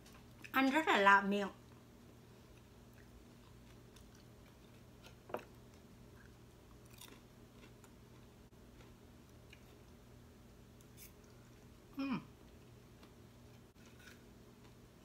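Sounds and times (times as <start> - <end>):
faint chewing: 1.6 - 10.0.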